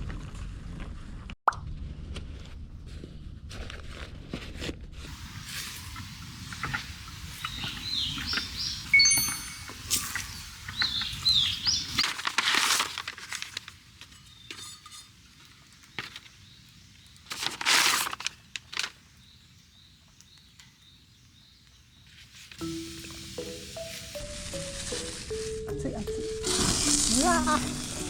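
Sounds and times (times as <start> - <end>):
rustling: 2.4 - 19.3, 22.0 - 27.7
bird chirps: 6.5 - 12.0.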